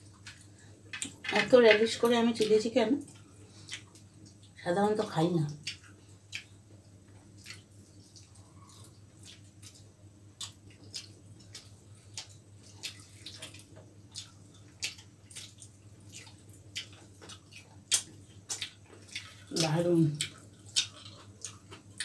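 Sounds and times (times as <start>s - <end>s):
steady low hum: 0.0s - 22.0s
chewing clicks: 7.4s - 22.0s.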